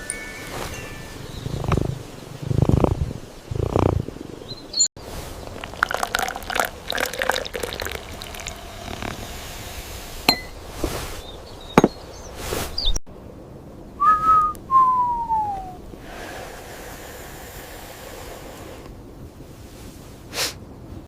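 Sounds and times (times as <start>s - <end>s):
cups and utensils clinking: 5.5s - 9.2s, 10.3s - 10.6s
short whistling tones: 14.0s - 15.8s.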